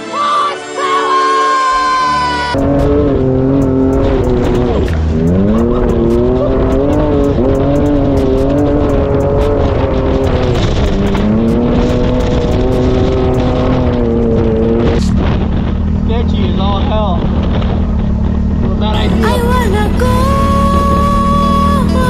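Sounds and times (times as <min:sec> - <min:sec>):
engine revving under load: 0:02.5 - 0:22.0
sharp ticks: 0:02.6 - 0:15.9.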